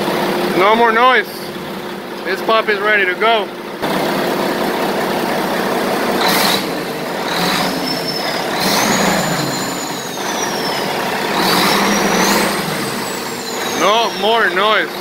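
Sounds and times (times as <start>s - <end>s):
diesel engine running: 0.0s - 15.0s
high whistle: 7.4s - 14.8s.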